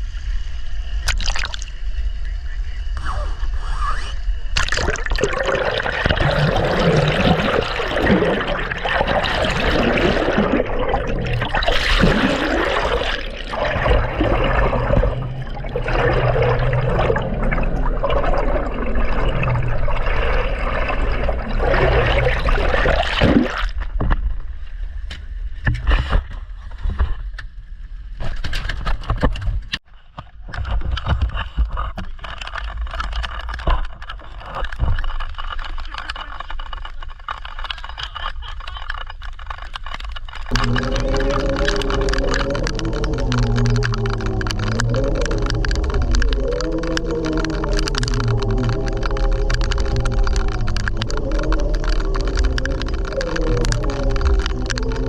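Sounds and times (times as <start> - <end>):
low rumble: 0.0 - 25.6, 40.4 - 55.0
water sloshing and gurgling: 0.8 - 1.9, 4.3 - 55.0.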